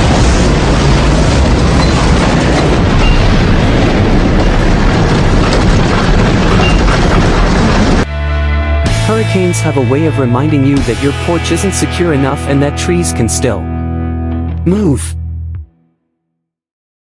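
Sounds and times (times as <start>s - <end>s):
storm wind blowing hard: 0.0s - 8.1s.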